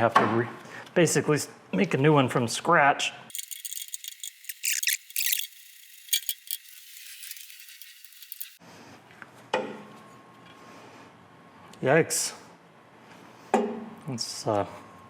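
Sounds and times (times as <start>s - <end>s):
small metal parts clinking: 3.3s - 8.6s.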